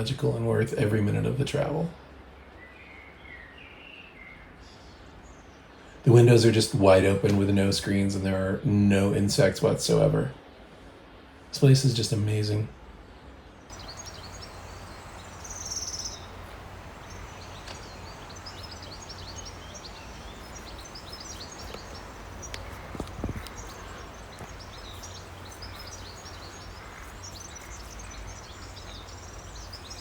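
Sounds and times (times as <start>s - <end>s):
birds chirping and singing: 13.7s - 30.0s
river rushing: 13.7s - 30.0s.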